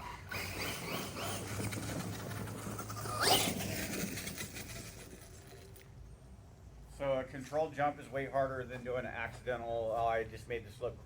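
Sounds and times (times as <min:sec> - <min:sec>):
electric motor whining: 0:00.0 - 0:04.5.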